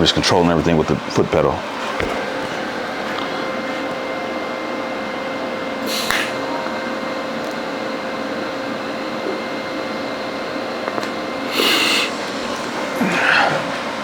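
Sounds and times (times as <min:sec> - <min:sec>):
faint hum: 0:00.0 - 0:14.0
welding arc hissing: 0:05.8 - 0:06.5, 0:10.9 - 0:14.0.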